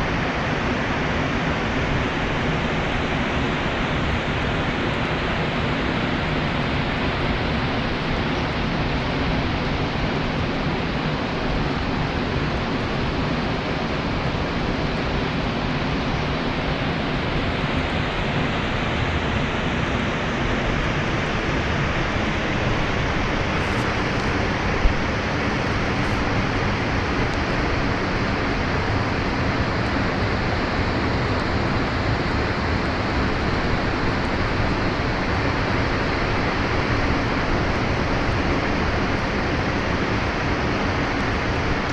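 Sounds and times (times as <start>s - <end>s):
waterfall rushing: 16.9s - 41.9s.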